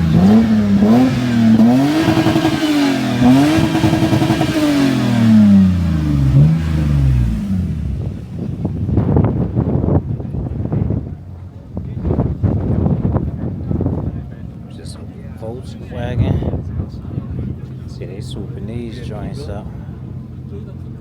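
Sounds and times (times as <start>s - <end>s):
car engine revving: 0.0s - 10.4s.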